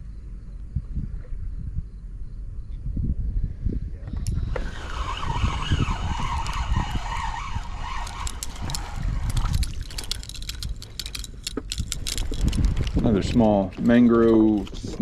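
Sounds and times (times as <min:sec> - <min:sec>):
fishing reel whirring: 0:04.3 - 0:13.4
quick clicks and rattles: 0:04.6 - 0:15.0.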